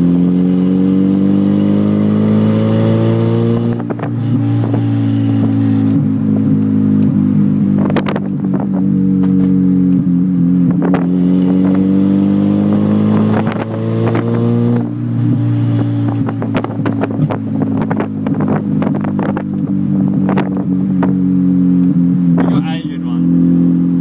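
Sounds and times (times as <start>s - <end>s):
unmuffled car engine revving: 0.0s - 24.0s
exhaust pops and cracks: 16.2s - 22.5s.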